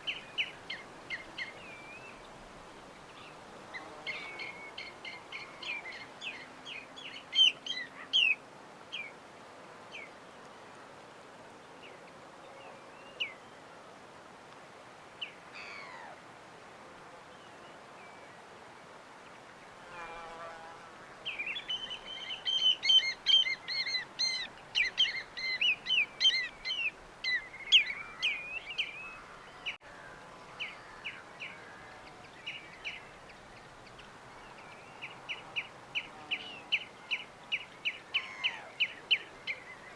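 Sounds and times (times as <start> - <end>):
steady background hiss: 0.0 - 39.9
small birds chirping: 21.2 - 29.8.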